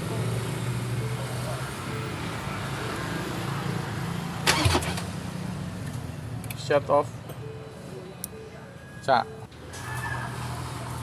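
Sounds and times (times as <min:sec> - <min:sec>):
diesel engine turning over: 0:04.4 - 0:05.3.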